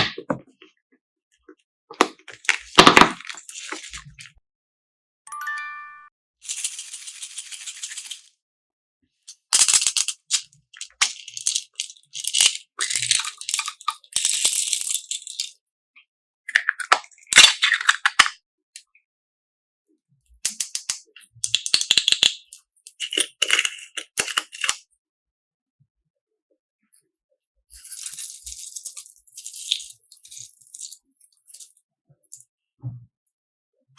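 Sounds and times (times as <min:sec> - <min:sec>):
short pitched chime: 0:05.3 - 0:06.1.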